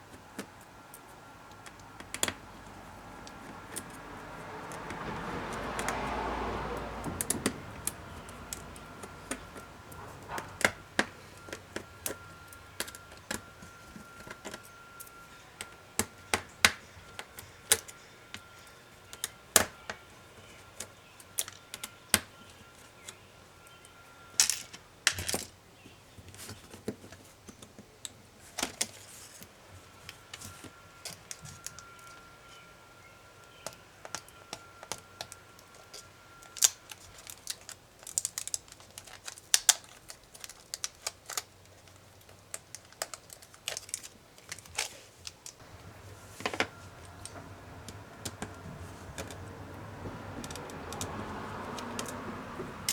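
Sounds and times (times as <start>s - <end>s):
laptop parts clicking and tapping: 0.0s - 6.2s, 33.4s - 45.6s, 50.4s - 52.3s.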